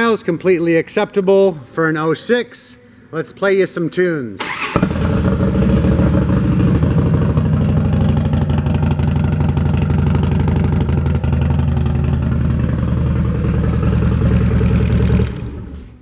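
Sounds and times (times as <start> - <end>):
motorcycle engine idling: 4.8 - 16.0.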